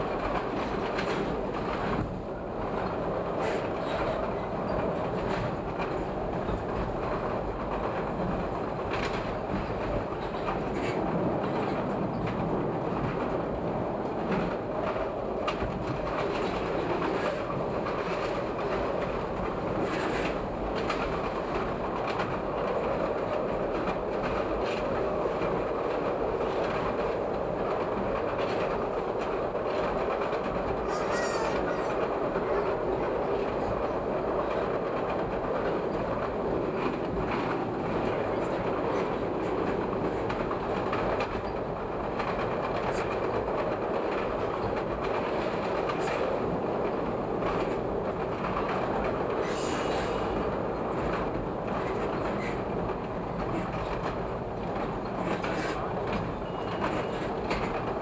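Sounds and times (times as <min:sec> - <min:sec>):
train rumbling on elevated track: 0:00.0 - 0:58.0
wheels clicking over rail joints: 0:14.1 - 0:58.0.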